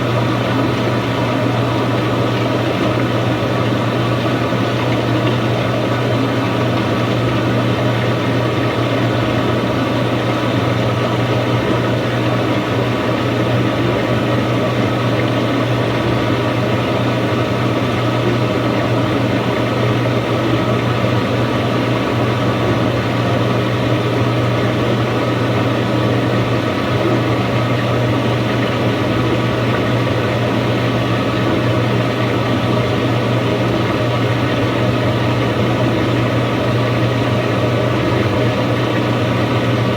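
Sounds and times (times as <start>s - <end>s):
washing machine running: 0.0s - 39.9s.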